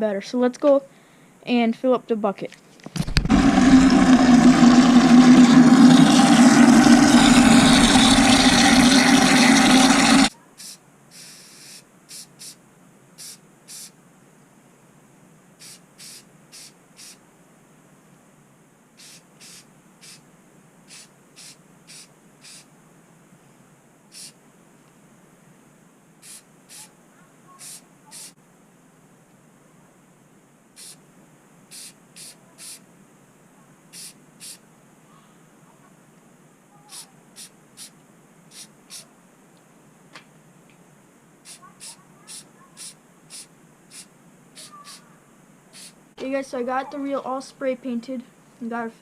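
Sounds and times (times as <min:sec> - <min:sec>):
spray paint can hissing: 0:03.4 - 0:12.6, 0:13.2 - 0:13.9, 0:15.6 - 0:17.2, 0:19.0 - 0:20.2, 0:20.9 - 0:22.7, 0:24.1 - 0:24.4, 0:26.2 - 0:26.9, 0:27.6 - 0:28.4, 0:30.8 - 0:31.0, 0:31.7 - 0:32.8, 0:33.9 - 0:34.6, 0:36.9 - 0:39.1, 0:41.4 - 0:45.0, 0:45.7 - 0:46.0.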